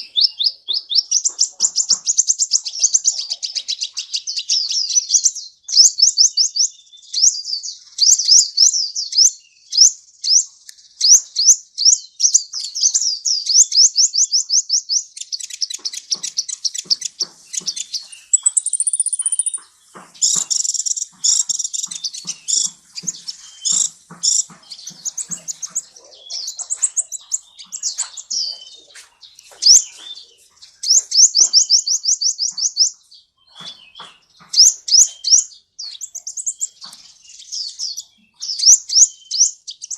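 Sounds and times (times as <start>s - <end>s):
bird chirping and trilling: 0.0s - 39.9s
high bird whistle: 18.3s - 19.6s.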